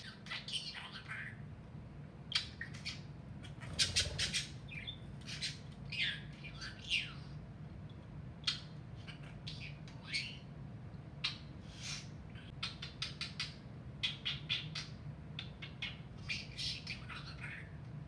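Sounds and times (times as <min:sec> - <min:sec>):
steady low hum: 0:00.0 - 0:12.6
budgerigars chirping and squawking: 0:02.3 - 0:07.2.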